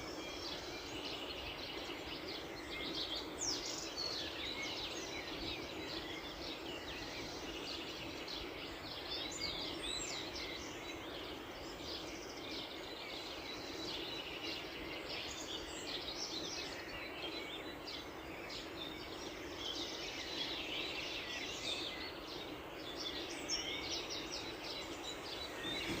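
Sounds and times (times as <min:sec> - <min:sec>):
small birds chirping and trilling: 0:00.0 - 0:26.0
low background rush: 0:09.7 - 0:26.0.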